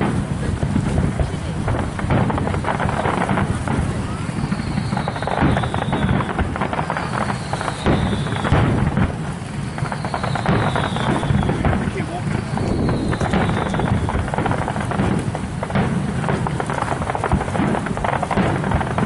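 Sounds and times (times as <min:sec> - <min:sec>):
fireworks crackling and popping: 0:00.0 - 0:19.0
whistles falling in pitch: 0:12.4 - 0:14.1.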